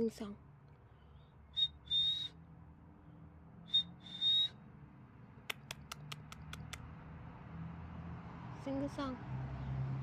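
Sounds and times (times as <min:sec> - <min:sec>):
two-note whistle: 0:01.6 - 0:02.4, 0:03.7 - 0:04.6
sharp clicks: 0:05.4 - 0:06.9.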